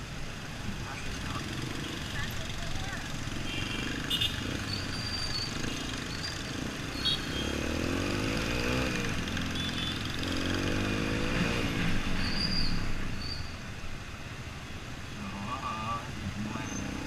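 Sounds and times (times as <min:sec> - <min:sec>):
motorcycle engine revving: 0:01.3 - 0:12.0.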